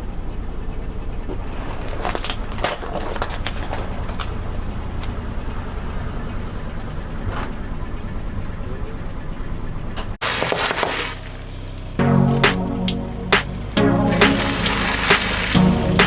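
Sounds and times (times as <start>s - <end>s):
car engine rumble: 0.0s - 16.0s
crackling and crunching: 1.5s - 4.8s, 10.2s - 11.2s, 14.0s - 16.0s.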